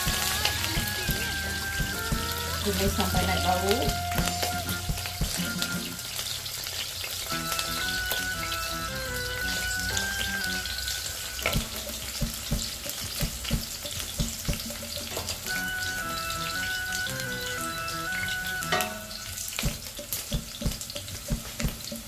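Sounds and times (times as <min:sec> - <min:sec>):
shallots and garlic sizzling in oil: 0:00.0 - 0:22.0
spatula knocking against pot: 0:11.4 - 0:15.5, 0:19.6 - 0:22.0.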